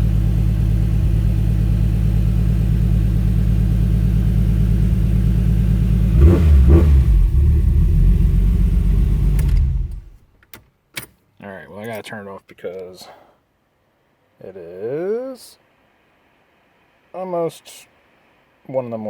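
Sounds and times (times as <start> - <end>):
engine throttle blips: 0.0 - 10.2
car engine idling: 0.0 - 10.3.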